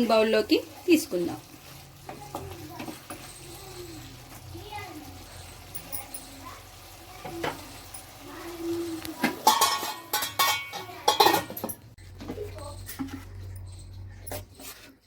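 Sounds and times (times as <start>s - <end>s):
metal spoon scraping a pan: 7.2s - 11.6s.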